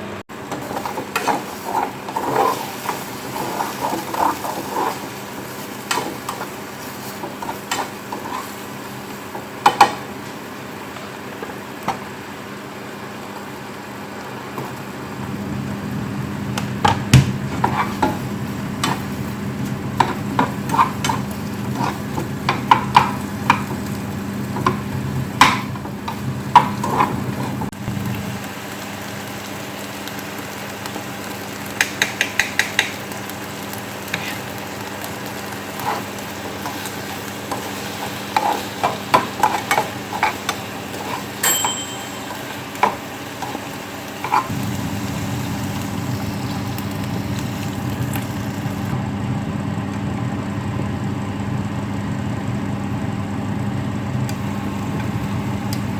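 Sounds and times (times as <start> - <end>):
utensils clinking and scraping: 35.8 - 44.6.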